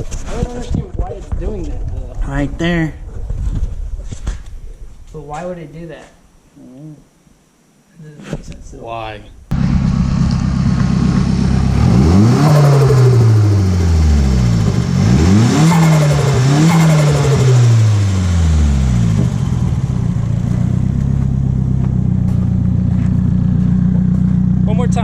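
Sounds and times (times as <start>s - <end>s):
car engine revving and idling: 9.5s - 25.0s.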